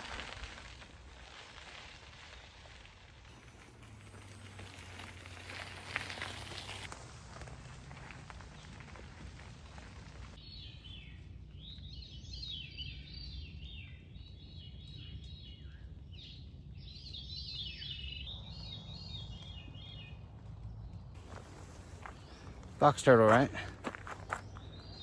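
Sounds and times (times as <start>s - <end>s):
songbirds singing: 8.4s - 25.0s.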